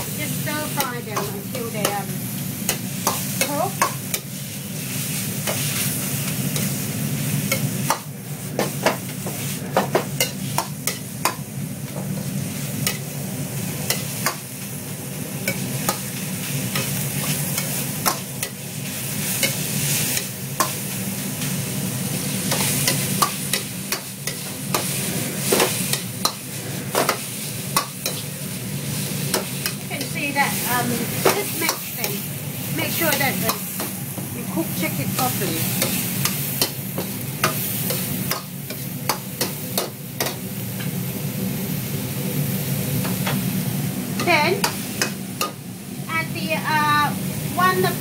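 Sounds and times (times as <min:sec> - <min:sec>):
meat sizzling in a pan: 0:00.0 - 0:48.0.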